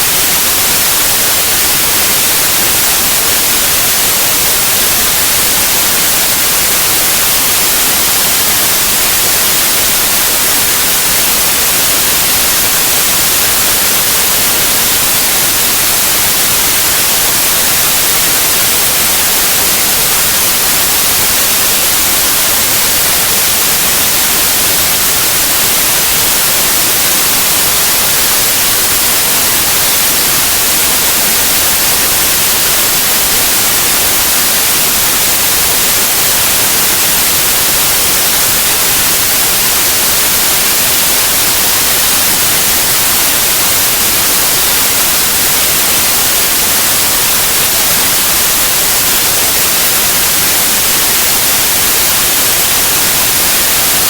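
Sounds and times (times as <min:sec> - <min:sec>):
loud white noise hiss: 0:00.0 - 0:54.0.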